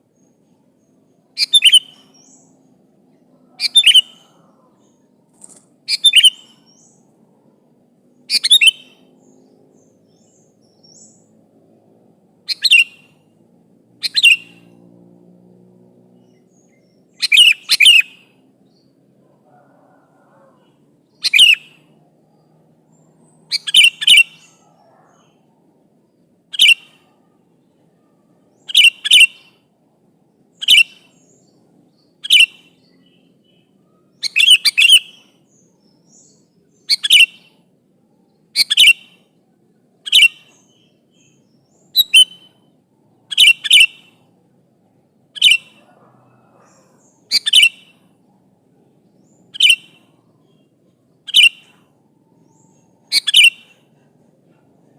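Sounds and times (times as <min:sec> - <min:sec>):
bulbul calling: 0:00.2 - 0:02.6, 0:03.4 - 0:07.1, 0:08.2 - 0:11.3, 0:12.4 - 0:13.3, 0:14.0 - 0:14.8, 0:16.2 - 0:22.0, 0:23.3 - 0:25.5, 0:26.5 - 0:27.2, 0:28.1 - 0:29.6, 0:30.5 - 0:37.6, 0:38.4 - 0:39.3, 0:40.0 - 0:44.3, 0:45.3 - 0:48.1, 0:49.1 - 0:54.9.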